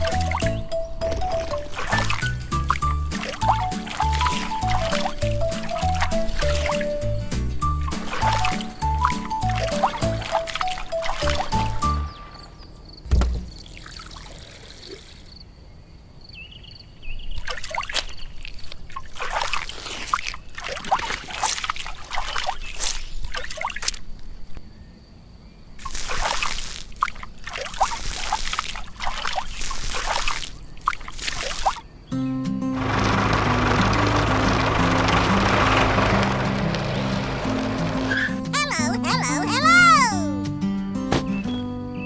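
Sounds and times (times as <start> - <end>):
liquid pouring and sloshing: 1.2 - 7.0, 7.9 - 11.8, 17.5 - 24.0, 25.8 - 31.8.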